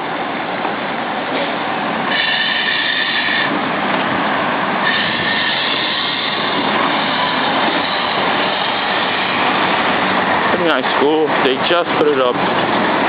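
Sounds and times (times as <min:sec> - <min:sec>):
roadside traffic noise: 0:00.0 - 0:13.0
high-pitched squeal: 0:02.1 - 0:03.6, 0:04.7 - 0:11.3.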